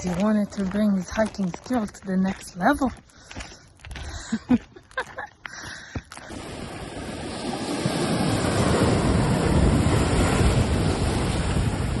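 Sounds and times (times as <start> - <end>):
waves breaking on rocky shore: 6.2 - 12.0
wind rumbling on microphone: 6.2 - 12.0.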